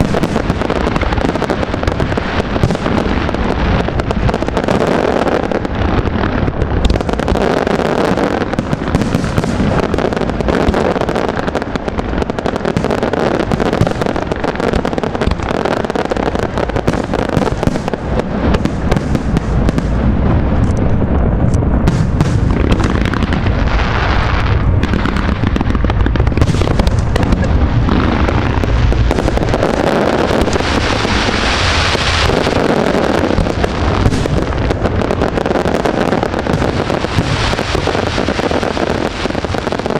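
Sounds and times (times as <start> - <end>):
firework shell bursts and crackle: 0.0 - 39.9
heavy low rumble: 16.1 - 39.2.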